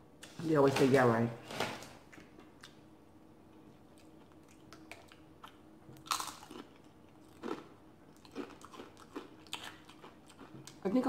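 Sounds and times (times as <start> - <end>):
crunching tortilla chips: 4.3 - 10.8.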